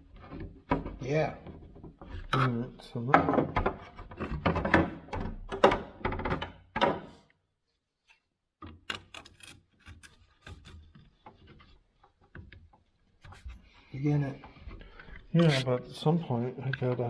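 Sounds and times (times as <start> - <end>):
hand tools scraping thin metal: 15.4 - 15.7.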